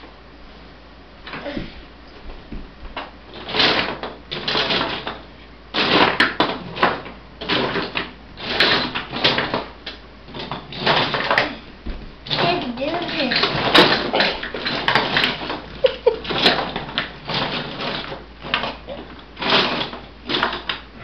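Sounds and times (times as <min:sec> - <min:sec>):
plastic toys clattering: 0:03.0 - 0:05.2, 0:05.8 - 0:11.6, 0:12.3 - 0:20.8.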